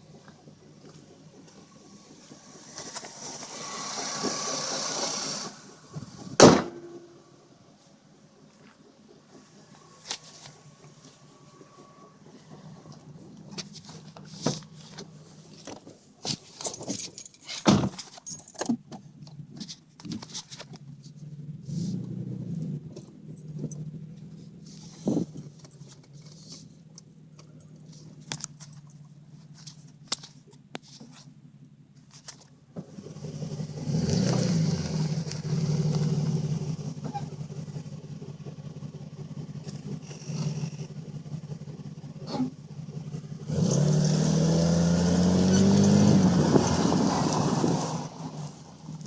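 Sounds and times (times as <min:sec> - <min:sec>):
car engine idling: 0:00.0 - 0:17.4, 0:18.8 - 0:49.0.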